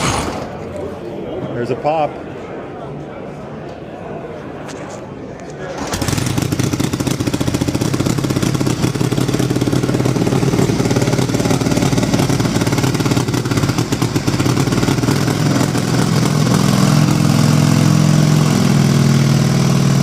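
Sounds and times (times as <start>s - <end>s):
motorcycle engine idling: 5.9s - 20.0s.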